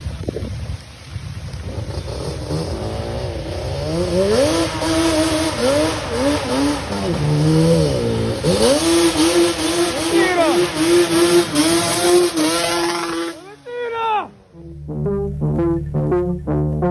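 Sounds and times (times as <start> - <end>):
off-road vehicle engine revving: 1.6 - 13.6.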